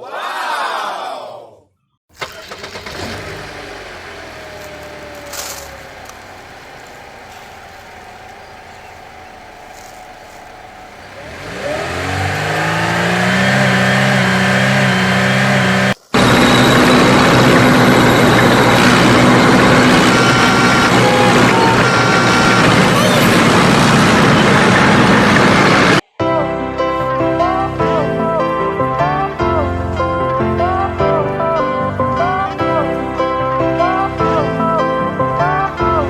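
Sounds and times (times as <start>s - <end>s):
vehicle engine revving: 2.2s - 26.0s.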